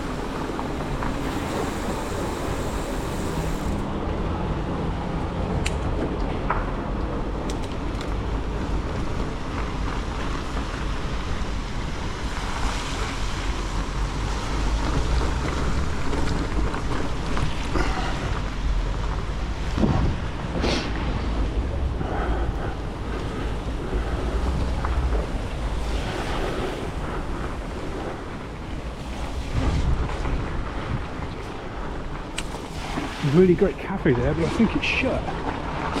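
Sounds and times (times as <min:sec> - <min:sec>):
bicycle being ridden: 0:00.0 - 0:36.0
wind rushing over microphone: 0:00.0 - 0:36.0
bike clicks and knocks: 0:05.6 - 0:09.8.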